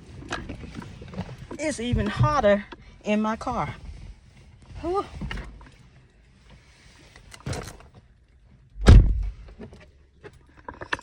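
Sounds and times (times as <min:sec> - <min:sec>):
car door thud: 0:08.8 - 0:09.4.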